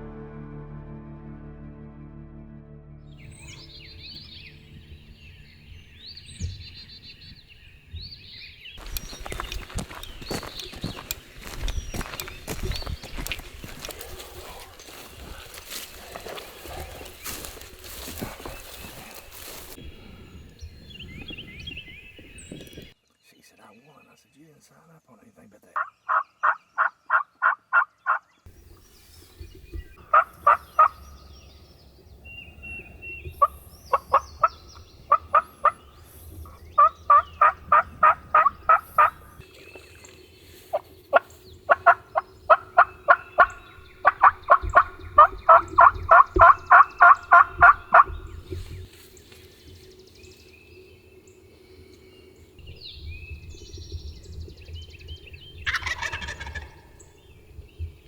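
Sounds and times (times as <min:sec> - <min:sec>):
turkeys yelping: 0:08.8 - 0:19.8, 0:25.8 - 0:28.2, 0:30.0 - 0:31.3, 0:32.9 - 0:39.5, 0:40.7 - 0:48.4, 0:55.6 - 0:57.2.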